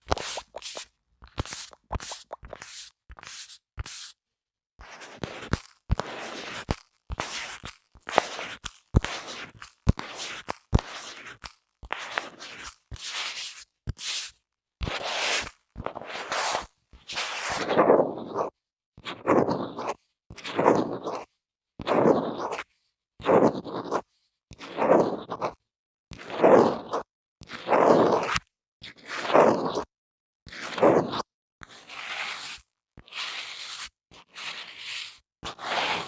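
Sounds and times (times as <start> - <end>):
objects scraping a microphone: 0.0 - 4.2, 4.8 - 13.4, 14.8 - 18.5, 19.1 - 22.6, 31.9 - 36.0.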